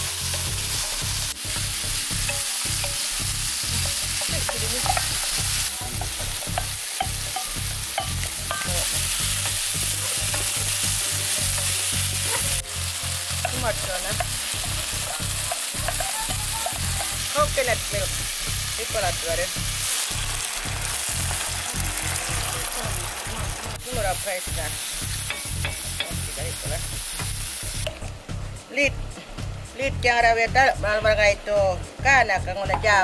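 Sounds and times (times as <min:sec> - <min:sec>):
food sizzling in a frypan: 0:00.0 - 0:28.4.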